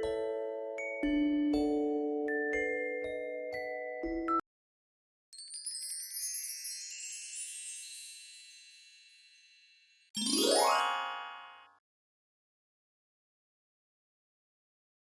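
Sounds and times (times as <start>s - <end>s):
sparkly chime effect: 5.3s - 11.7s.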